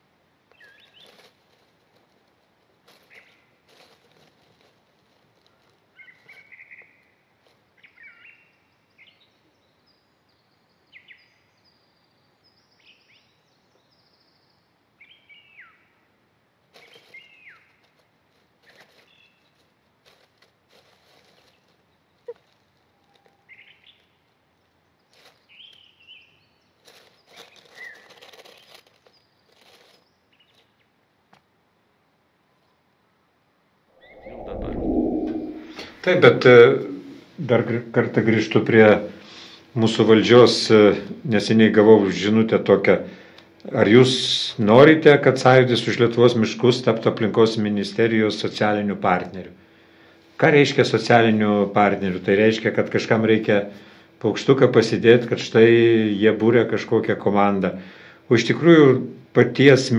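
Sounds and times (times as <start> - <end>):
faint background hiss: 0.0 - 59.9
wild birds chirping: 0.5 - 1.2, 5.6 - 7.2, 7.8 - 15.9, 21.4 - 30.9, 33.9 - 44.2.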